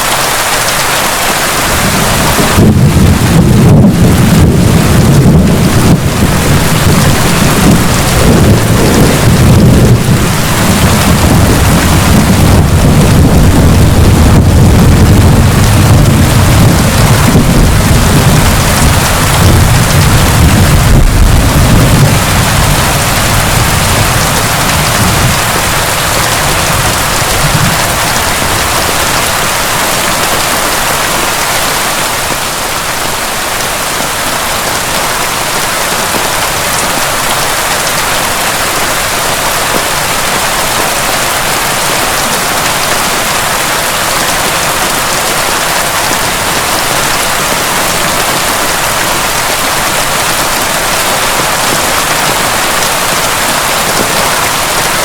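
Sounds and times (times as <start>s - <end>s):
heavy rain pouring: 0.0s - 55.0s
low rumble of thunder: 1.7s - 29.6s.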